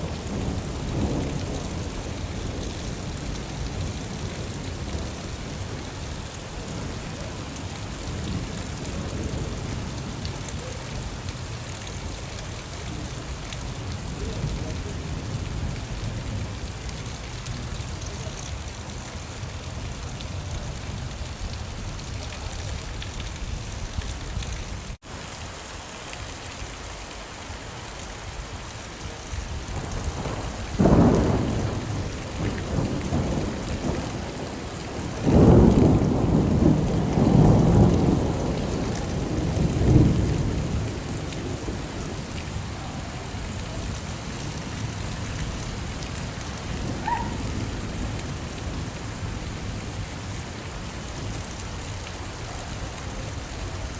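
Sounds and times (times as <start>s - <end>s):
steady rain falling: 0.0s - 53.9s
thunder rumbling: 29.5s - 50.1s.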